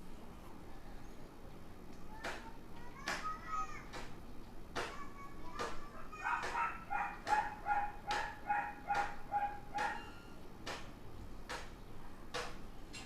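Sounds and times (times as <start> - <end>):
dog barking: 6.0 - 10.1.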